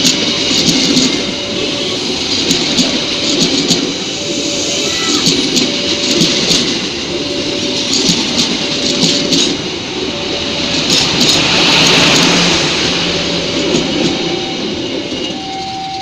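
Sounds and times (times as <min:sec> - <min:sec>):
train wheels clattering over rail joints: 0:00.0 - 0:01.4, 0:02.2 - 0:04.2, 0:05.0 - 0:09.8, 0:10.6 - 0:16.0
electronic warning tone: 0:00.4 - 0:16.0.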